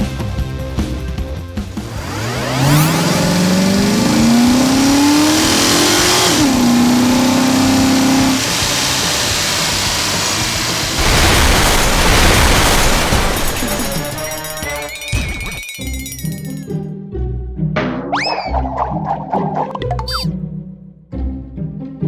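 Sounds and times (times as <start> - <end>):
cartoon vehicle engine revving: 1.7 - 16.8
loud noisy rush: 8.4 - 15.6.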